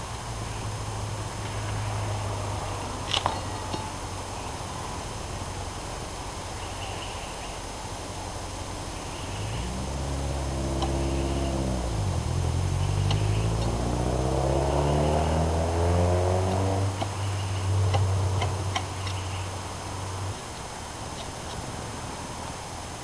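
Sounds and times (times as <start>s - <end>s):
low hum: 0.0s - 23.0s
vehicle engine revving: 0.0s - 23.0s.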